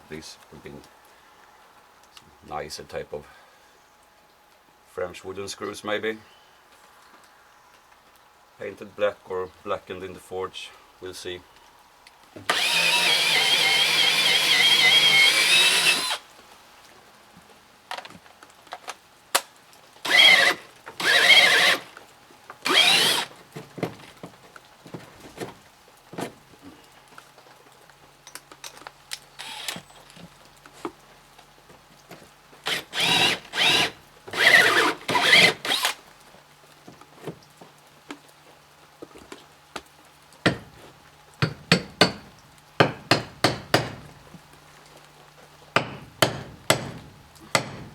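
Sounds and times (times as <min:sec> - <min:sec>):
drill driving screws into wood: 0:12.4 - 0:16.2, 0:20.0 - 0:22.0, 0:22.6 - 0:23.4, 0:29.4 - 0:29.8, 0:32.7 - 0:36.0.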